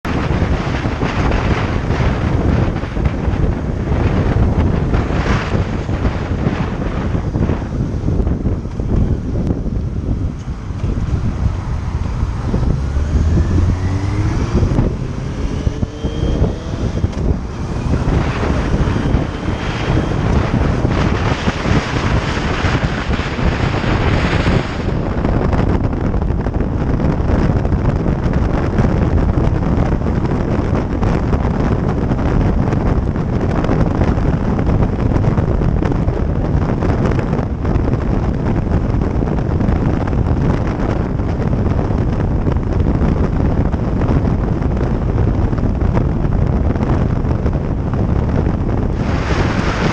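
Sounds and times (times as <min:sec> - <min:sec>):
wind rushing over microphone: 0:00.0 - 0:49.9
motorcycle engine pulling away: 0:10.6 - 0:24.4.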